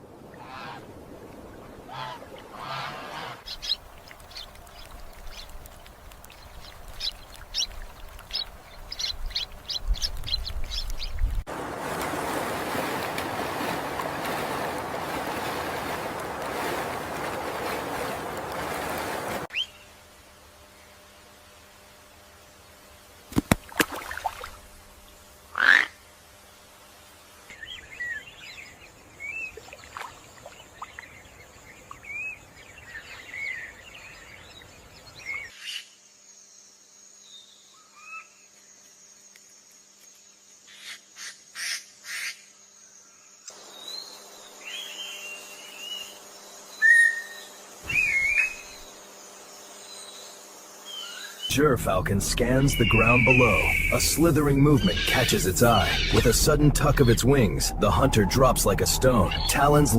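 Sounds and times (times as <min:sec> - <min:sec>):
faint outdoor background: 0:01.9 - 0:59.9
chirping animal calls: 0:03.2 - 0:11.4, 0:52.3 - 0:59.9.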